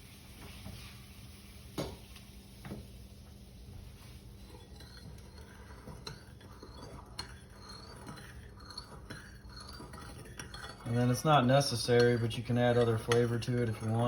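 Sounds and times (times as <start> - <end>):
utensils and dishes clicking: 4.4 - 14.0.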